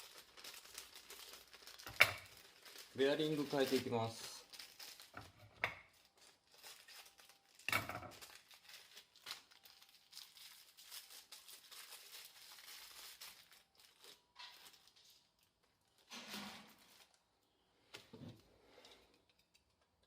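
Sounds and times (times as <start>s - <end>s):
wrapping crinkling and tearing: 0.0s - 17.6s.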